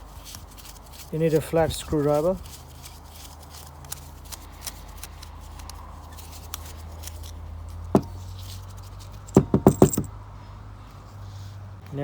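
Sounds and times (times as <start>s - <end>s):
screwdriver ticks and handling noises: 3.2s - 10.0s
sharp knock: 9.4s - 10.1s.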